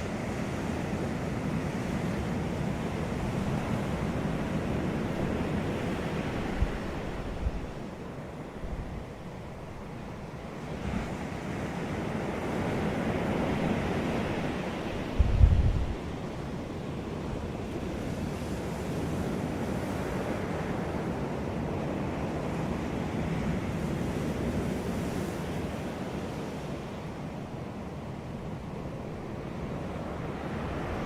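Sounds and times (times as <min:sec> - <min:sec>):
sea waves breaking on beach: 0:00.0 - 0:08.5, 0:09.8 - 0:31.0
wind buffeting microphone: 0:01.8 - 0:07.9, 0:13.8 - 0:16.5.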